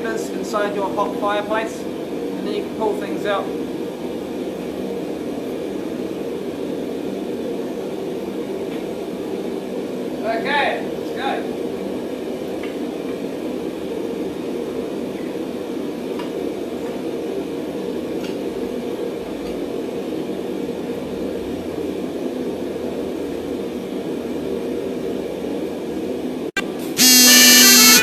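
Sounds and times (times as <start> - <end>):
forge rushing noise: 0.0 - 28.0
music: 27.0 - 28.0.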